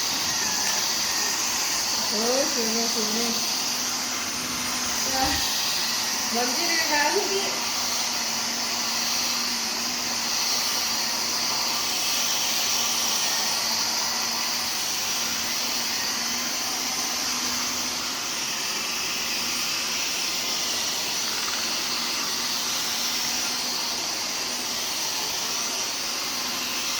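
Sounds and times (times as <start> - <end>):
vacuum cleaner running: 0.0 - 26.9.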